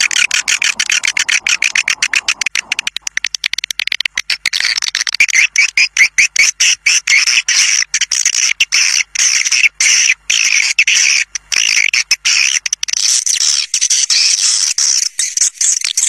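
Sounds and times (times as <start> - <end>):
rapid swiftlet chirps: 0.0 - 3.1.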